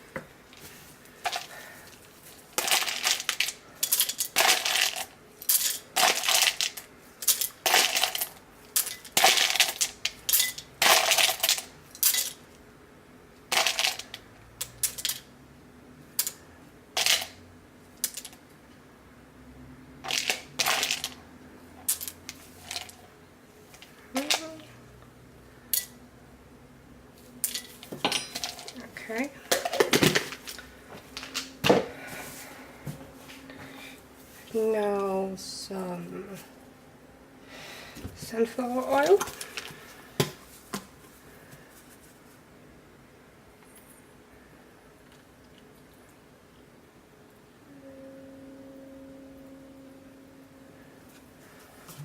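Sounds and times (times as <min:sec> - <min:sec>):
hard pieces clattering into container: 0:02.6 - 0:12.4, 0:13.5 - 0:14.1, 0:20.1 - 0:21.2.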